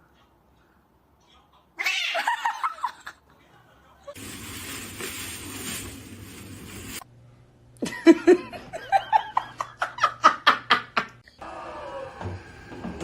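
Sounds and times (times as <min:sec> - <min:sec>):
steady hiss: 0:04.2 - 0:07.0.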